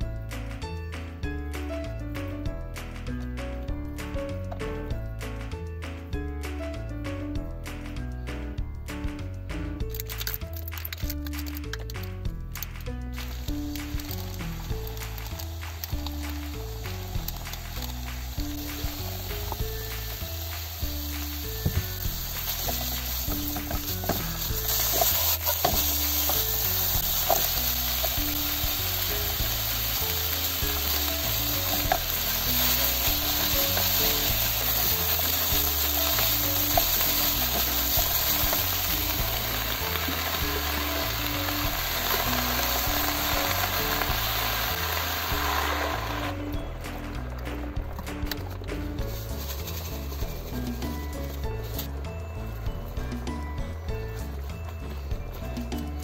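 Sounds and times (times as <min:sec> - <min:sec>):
meat sizzling in a frying pan: 0:13.1 - 0:47.1, 0:48.8 - 0:51.9
wooden spatula scraping a pan: 0:22.5 - 0:28.2, 0:49.0 - 0:52.0.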